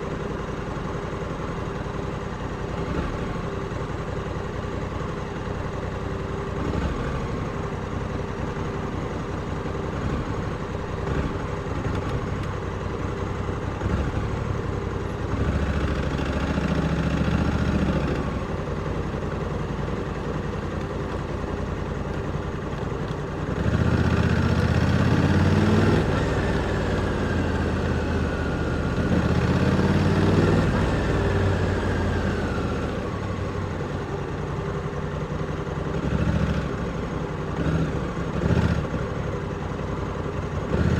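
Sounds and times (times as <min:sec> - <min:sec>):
motorcycle engine revving: 0:23.5 - 0:33.8, 0:35.9 - 0:39.3, 0:40.6 - 0:40.9.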